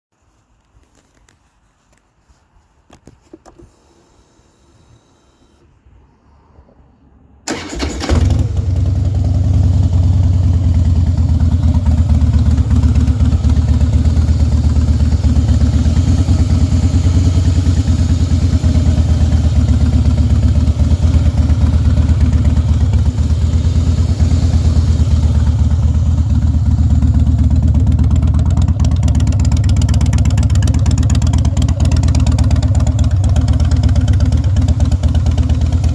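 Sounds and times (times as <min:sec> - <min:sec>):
motorcycle engine starting: 0:07.4 - 0:35.9
motorcycle idling loudly: 0:08.4 - 0:35.9.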